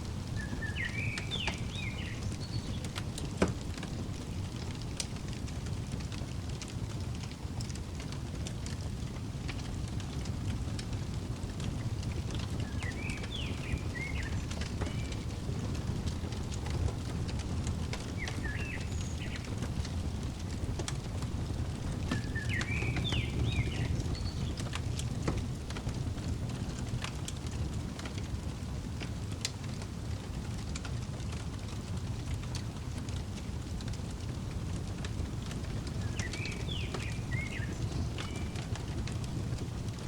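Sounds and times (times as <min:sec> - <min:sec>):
fireplace crackling and popping: 0:00.0 - 0:40.0
small bird chirping: 0:00.4 - 0:03.0, 0:12.4 - 0:16.8, 0:18.0 - 0:20.6, 0:22.1 - 0:24.7, 0:35.9 - 0:40.0.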